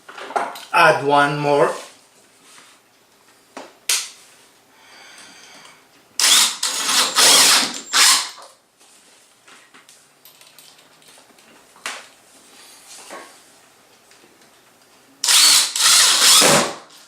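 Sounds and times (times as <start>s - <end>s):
power drill driving a screw: 6.2s - 8.4s, 15.2s - 16.9s.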